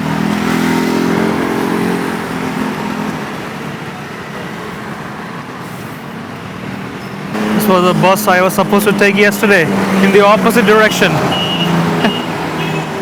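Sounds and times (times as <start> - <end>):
street traffic noise: 0.0 - 13.0
vehicle engine running: 7.3 - 13.0.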